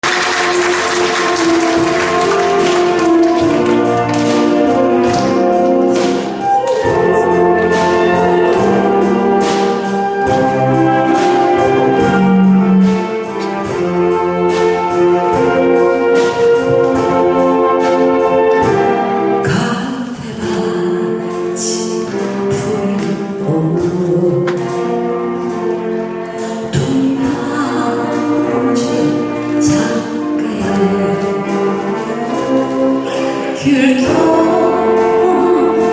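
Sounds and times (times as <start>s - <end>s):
saxophone ensemble melody: 0.0s - 35.9s
steady drum beat: 0.0s - 35.9s.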